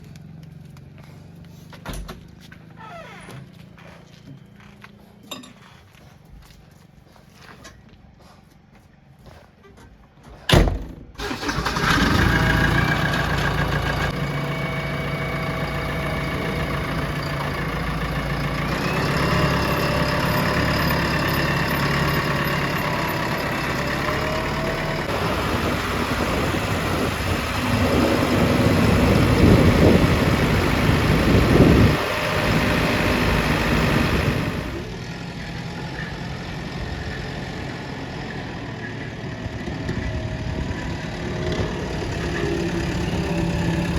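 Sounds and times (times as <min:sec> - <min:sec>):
diesel engine running under work: 0:00.0 - 0:02.6, 0:11.2 - 0:43.9
engine whine: 0:11.2 - 0:43.9.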